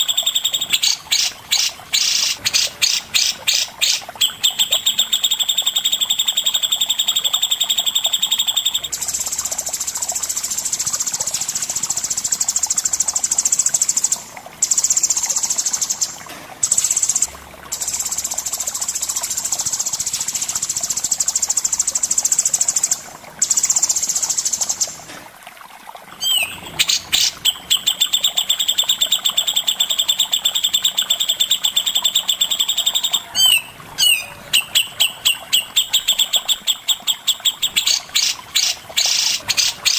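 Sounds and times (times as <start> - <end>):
songbird buzzy rattling trill: 0.0 - 25.0.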